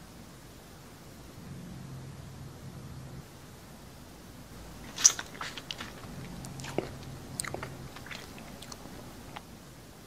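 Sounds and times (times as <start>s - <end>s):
crunchy chewing: 4.7s - 9.5s.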